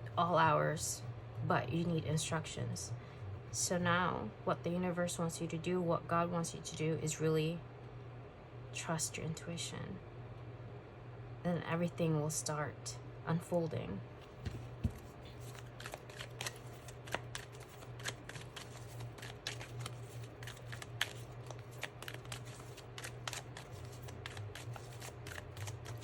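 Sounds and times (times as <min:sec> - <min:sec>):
low steady hum: 0:00.0 - 0:26.0
cards being shuffled: 0:14.2 - 0:26.0.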